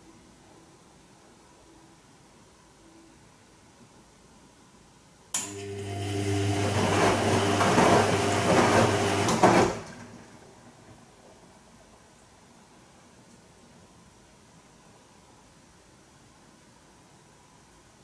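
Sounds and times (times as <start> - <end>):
washing machine hum: 5.4 - 11.5.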